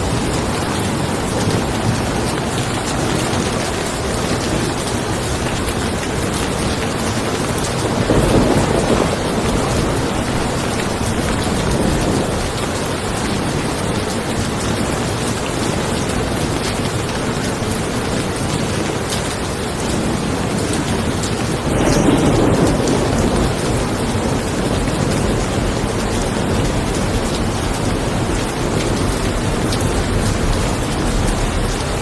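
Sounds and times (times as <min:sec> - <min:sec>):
steady rain: 0:00.0 - 0:32.0
low thunder rumble: 0:06.6 - 0:14.9, 0:20.0 - 0:32.0.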